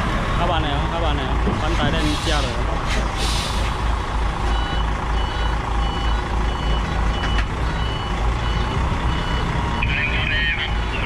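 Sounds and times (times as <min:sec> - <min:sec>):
diesel engine running: 0:00.0 - 0:11.0
truck reversing alarm beeping: 0:03.3 - 0:11.0.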